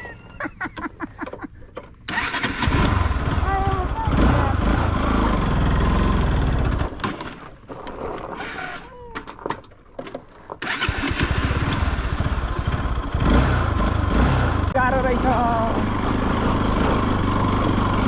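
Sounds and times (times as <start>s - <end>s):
motorcycle engine running: 2.1s - 7.0s, 10.7s - 18.0s.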